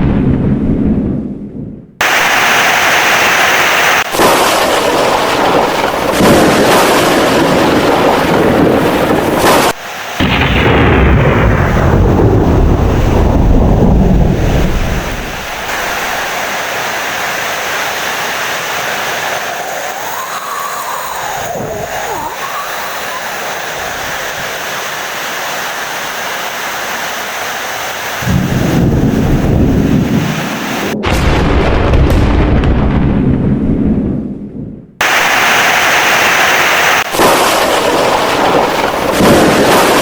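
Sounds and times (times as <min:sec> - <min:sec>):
deep rumble of thunder: 0:00.0 - 0:02.0, 0:04.2 - 0:09.4, 0:10.2 - 0:15.7, 0:28.2 - 0:35.0, 0:37.2 - 0:40.0
heavy rain: 0:02.0 - 0:31.0, 0:35.0 - 0:40.0.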